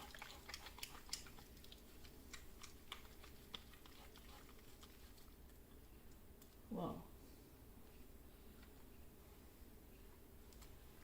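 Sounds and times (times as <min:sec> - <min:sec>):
hands lathering soap squelching: 0:00.0 - 0:05.6.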